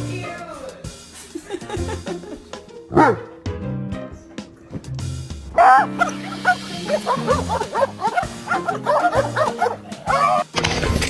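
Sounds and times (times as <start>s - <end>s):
background music: 0.0s - 11.0s
dog howling: 5.6s - 10.5s.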